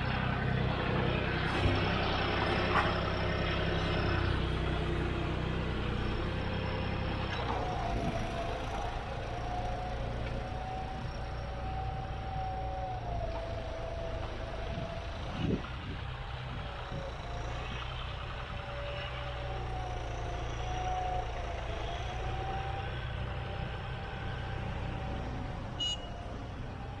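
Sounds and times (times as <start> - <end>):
tractor diesel engine running: 0.0 - 27.0
turbo whistling: 25.8 - 26.3.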